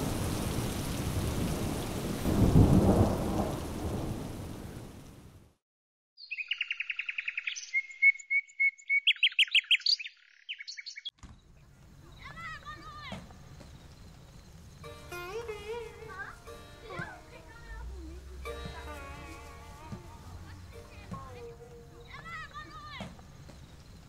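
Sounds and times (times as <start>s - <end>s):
thunder rumbling: 0.0s - 5.5s, 12.9s - 23.8s
rain falling: 0.0s - 5.6s, 11.7s - 24.0s
bird singing trills and chirps: 6.2s - 11.2s.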